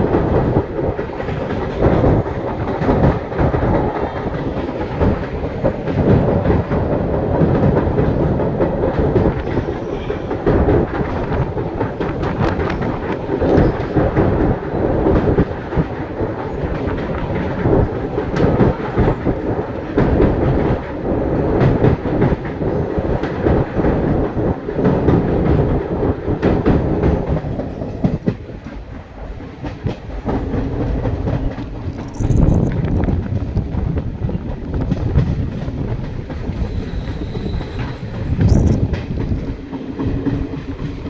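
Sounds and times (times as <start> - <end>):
train rumble: 0.0 - 41.0
train wheels clattering over rail joints: 0.0 - 41.0.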